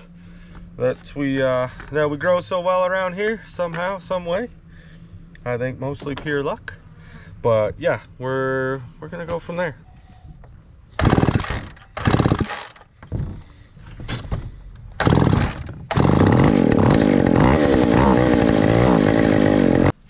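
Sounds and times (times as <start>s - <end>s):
chainsaw engine running: 11.0s - 12.8s, 15.0s - 20.0s
chainsaw being pull-started: 11.0s - 12.9s, 15.0s - 20.0s.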